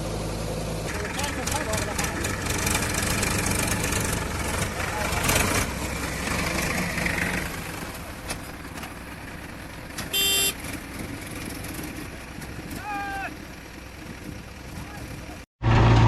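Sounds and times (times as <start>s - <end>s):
diesel engine running: 0.0s - 16.0s
loud horn blast: 10.1s - 10.6s.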